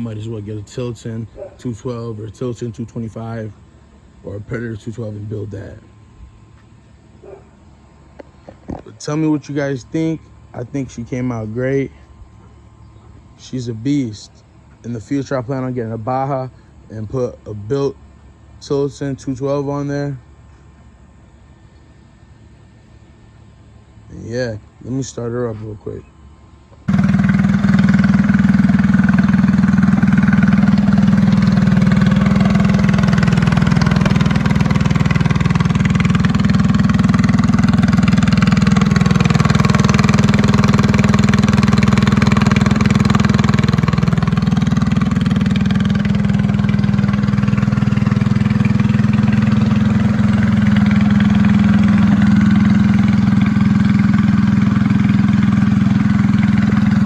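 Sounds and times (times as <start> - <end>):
minibike engine running: 26.9 - 57.0.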